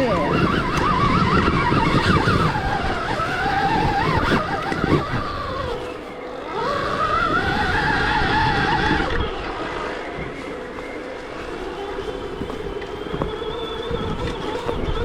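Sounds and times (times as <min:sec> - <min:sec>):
electric motor whining: 0:00.0 - 0:15.0
bike knocking on rough ground: 0:11.5 - 0:15.0.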